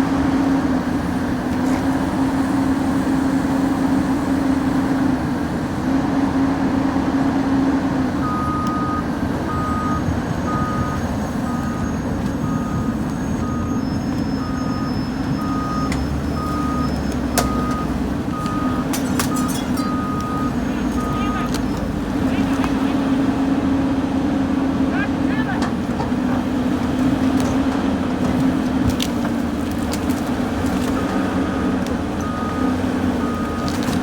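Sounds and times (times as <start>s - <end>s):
diesel engine running: 0.0s - 34.0s
motion alarm beeping: 8.2s - 21.9s.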